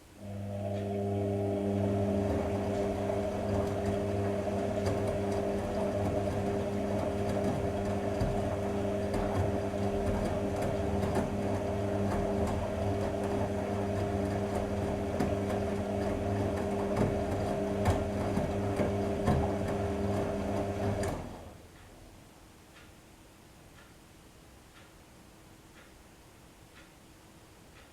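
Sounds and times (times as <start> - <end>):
washing machine humming: 0.0 - 22.1.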